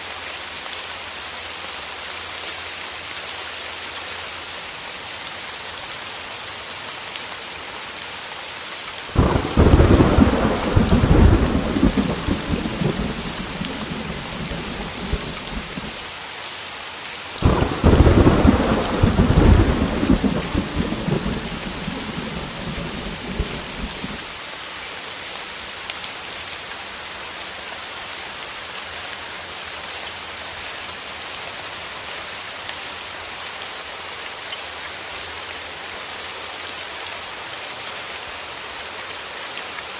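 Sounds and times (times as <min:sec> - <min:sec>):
heavy rain hissing: 0:00.0 - 0:25.1
thunder rumbling: 0:09.2 - 0:16.0, 0:17.4 - 0:24.3.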